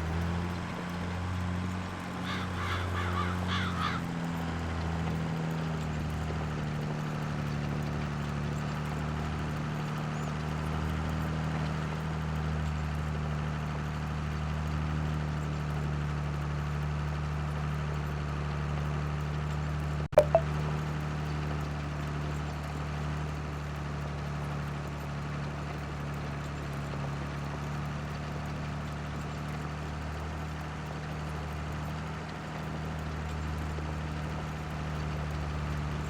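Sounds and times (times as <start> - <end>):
short high-pitched calls: 20.2 - 20.4.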